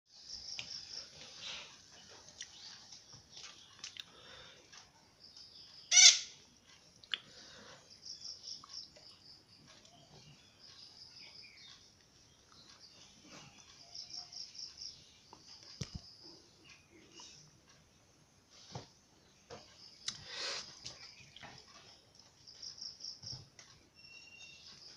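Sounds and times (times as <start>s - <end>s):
bird chirping trills: 5.0s - 18.2s, 19.2s - 24.9s.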